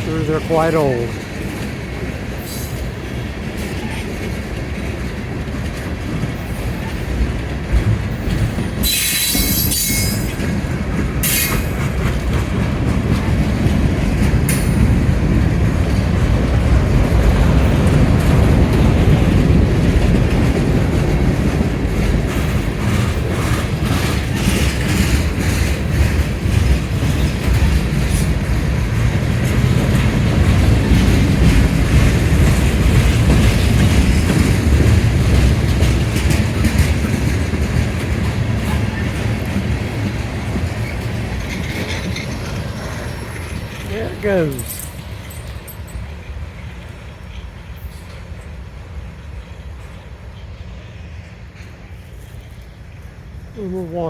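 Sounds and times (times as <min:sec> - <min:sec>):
wheels clacking over rail joints: 0:00.0 - 0:50.6
train rolling past: 0:00.0 - 0:54.0
high wheel squeal: 0:08.8 - 0:10.4.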